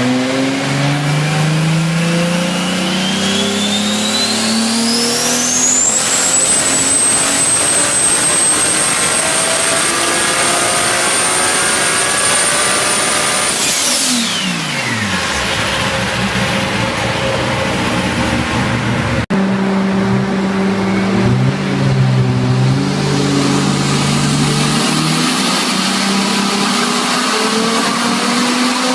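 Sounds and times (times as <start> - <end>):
engine revving: 0.0 - 28.9
turbo whistle: 2.2 - 15.0.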